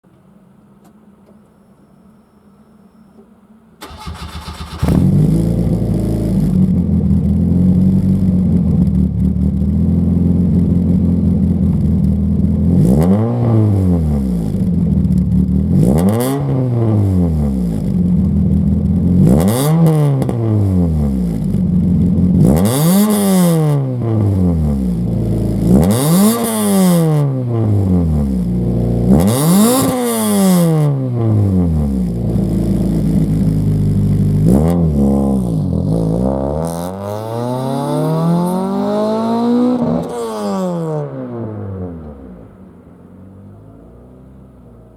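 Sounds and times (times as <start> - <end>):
faint hum: 0.1 - 3.8
car engine idling and revving: 3.8 - 44.9.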